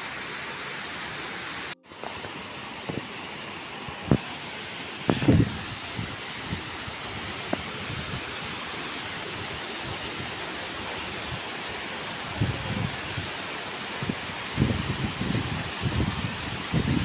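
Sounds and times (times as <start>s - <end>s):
waterfall rushing: 0.0s - 17.0s
wind buffet on microphone: 5.1s - 17.0s.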